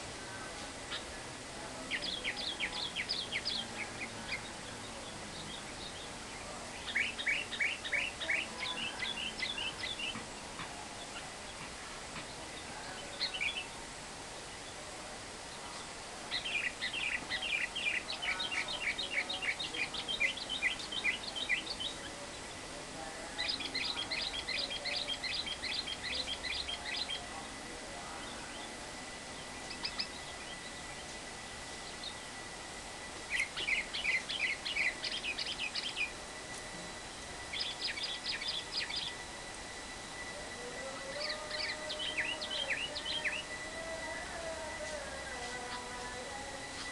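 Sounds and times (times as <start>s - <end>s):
background hiss: 0.0s - 46.9s
lovebird chattering chirps: 1.9s - 10.2s, 29.4s - 31.1s, 33.2s - 36.2s, 37.4s - 39.2s.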